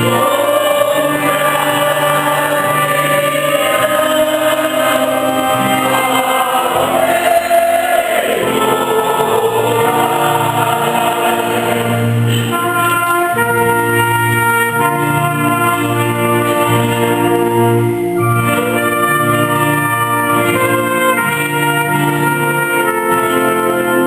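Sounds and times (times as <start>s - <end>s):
group singing with instruments: 0.0s - 13.7s.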